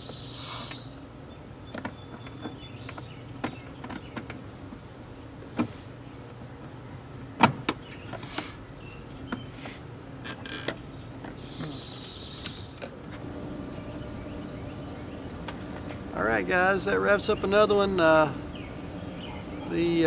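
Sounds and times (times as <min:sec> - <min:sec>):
power window motor hum: 0:12.9 - 0:16.2.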